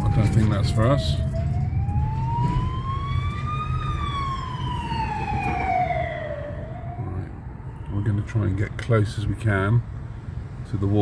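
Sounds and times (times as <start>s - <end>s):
car rumble: 0.0s - 7.8s
emergency siren wailing: 0.0s - 8.8s.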